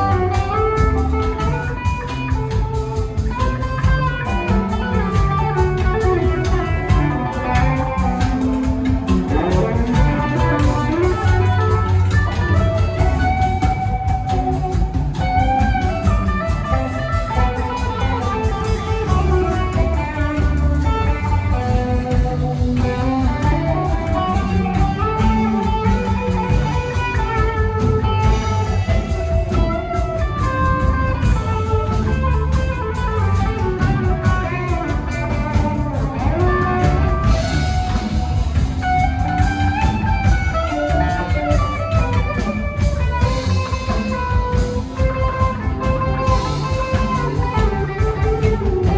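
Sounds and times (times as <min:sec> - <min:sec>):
bass guitar: 0:00.0 - 0:48.9
drum kit: 0:00.0 - 0:48.9
electric guitar lead: 0:00.0 - 0:48.9.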